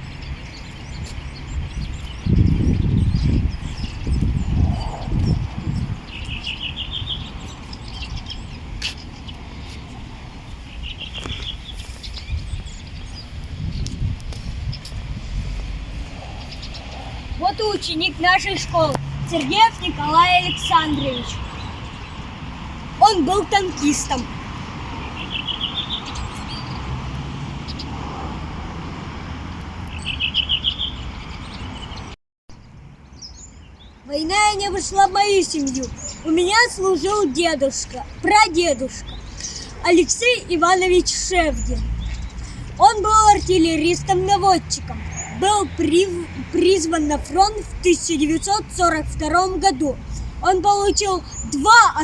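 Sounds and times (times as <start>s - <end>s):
songbird trilling: 0.0s - 9.9s, 10.7s - 22.2s, 34.5s - 44.4s
small bird chirping: 0.0s - 22.2s, 29.8s - 43.8s
wind rumble on microphone: 0.0s - 34.0s.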